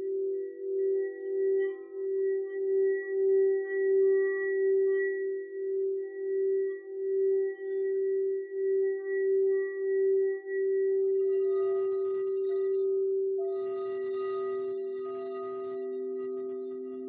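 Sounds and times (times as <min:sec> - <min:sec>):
lower singing bowl tone: 0:00.0 - 0:17.0
singing bowl ringing: 0:11.1 - 0:17.0.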